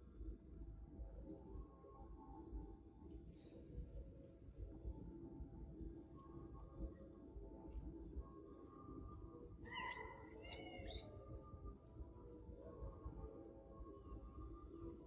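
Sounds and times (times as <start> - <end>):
faint outdoor rumble: 0.0 - 15.0
bird chirping: 8.9 - 12.7, 13.7 - 15.0.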